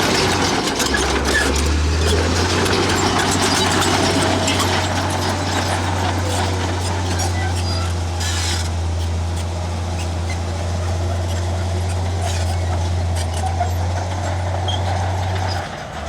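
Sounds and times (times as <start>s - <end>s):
heavy diesel engine droning: 0.0s - 16.0s.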